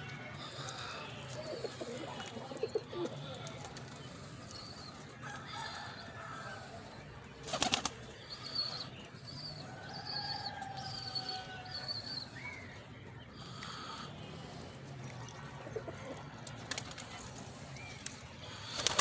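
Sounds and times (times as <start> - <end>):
wings flapping: 7.4 - 8.0, 16.5 - 17.3, 18.0 - 19.0.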